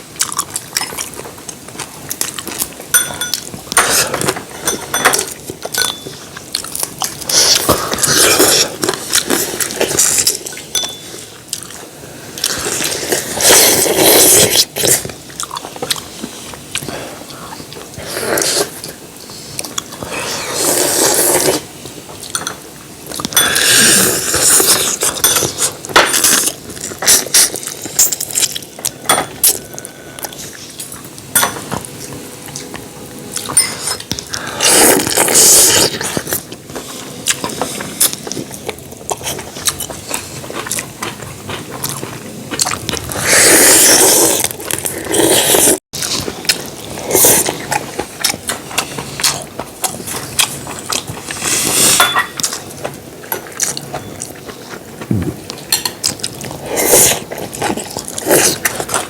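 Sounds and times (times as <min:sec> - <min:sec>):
chewing: 0:00.2 - 0:59.0
utensils clicking on dishes: 0:02.9 - 0:06.2
slurping broth: 0:12.1 - 0:15.1, 0:17.9 - 0:21.7, 0:23.4 - 0:28.4, 0:33.4 - 0:38.2, 0:42.7 - 0:49.5, 0:51.2 - 0:52.2, 0:56.3 - 0:59.0.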